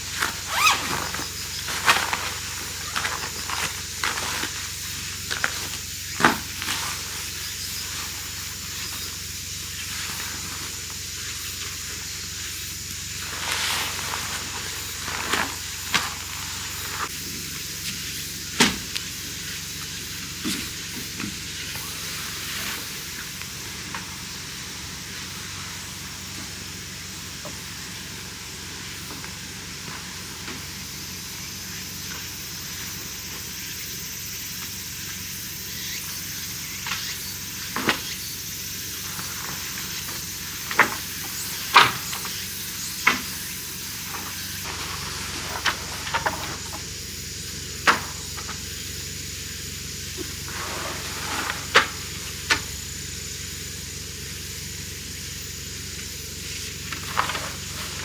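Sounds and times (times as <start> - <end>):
rain hissing: 0.0 - 58.0.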